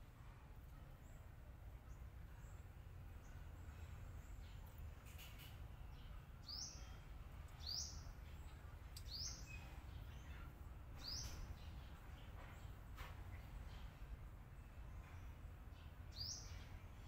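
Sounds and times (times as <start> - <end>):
low steady hum: 0.0 - 17.0
small bird chirping: 4.2 - 14.0.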